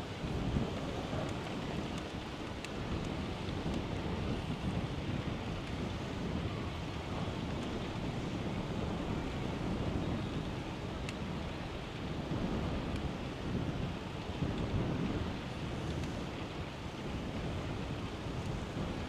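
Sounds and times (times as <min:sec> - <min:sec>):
wind buffeting microphone: 0:00.0 - 0:19.0
faint ticks: 0:15.8 - 0:16.5.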